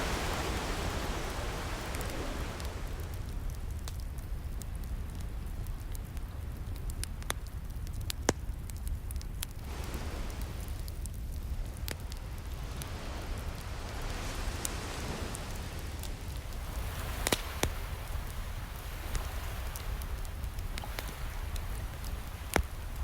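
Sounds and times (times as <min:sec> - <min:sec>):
ocean waves washing in: 0:00.0 - 0:04.4, 0:09.6 - 0:23.0
wood fire crackling and popping: 0:00.1 - 0:23.0.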